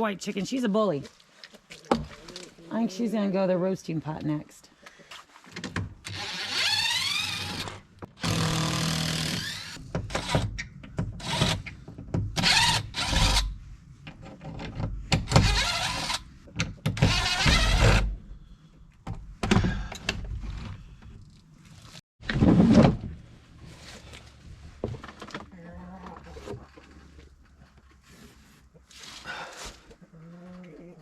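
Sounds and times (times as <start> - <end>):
power drill running: 6.1 - 9.8.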